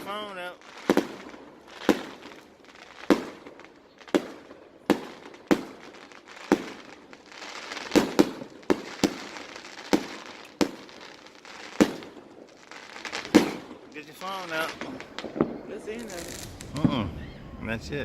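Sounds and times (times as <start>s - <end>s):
firework shells bursting: 0.0s - 17.7s
fireworks crackling: 0.0s - 18.0s.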